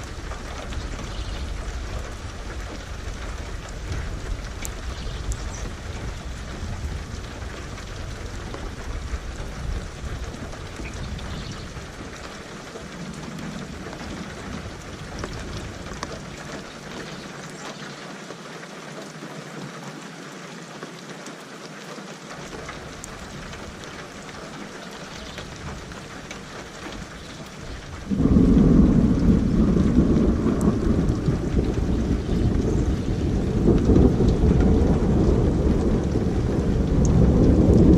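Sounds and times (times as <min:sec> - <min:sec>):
thunder rumbling: 0:00.0 - 0:17.2, 0:22.5 - 0:37.9
steady rain falling: 0:00.0 - 0:37.9
loud thunder clap: 0:28.0 - 0:37.9.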